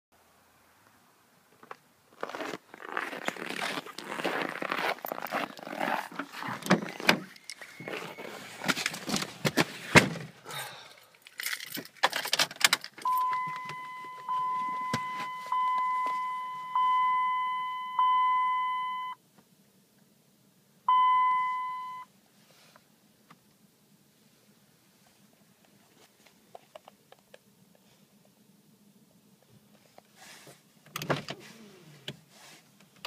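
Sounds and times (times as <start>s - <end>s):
keys jangling: 11.3s - 13.0s
dashboard warning chime pinging: 13.0s - 19.2s, 20.9s - 22.1s.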